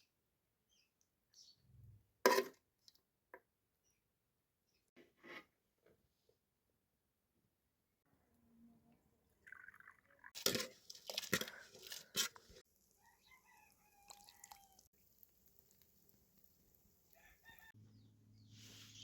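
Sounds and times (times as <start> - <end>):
faint chicken calls: 12.9 - 14.9, 17.1 - 19.0
rooster crowing loudly: 13.0 - 14.9, 17.2 - 17.7.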